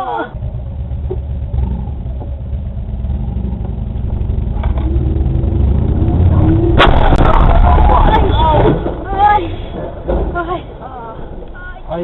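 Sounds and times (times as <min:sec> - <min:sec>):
car engine and road rumble: 0:00.0 - 0:12.0
faint rising whine: 0:00.4 - 0:09.1.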